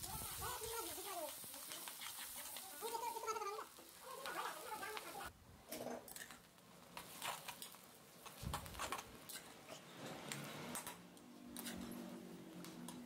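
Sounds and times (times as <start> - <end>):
onions frying in hot oil: 0.0 - 5.3, 6.2 - 8.8.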